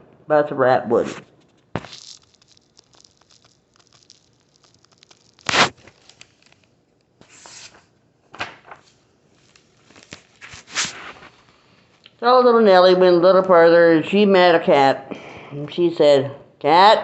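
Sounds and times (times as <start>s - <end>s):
book pages turning: 1.2s - 11.6s.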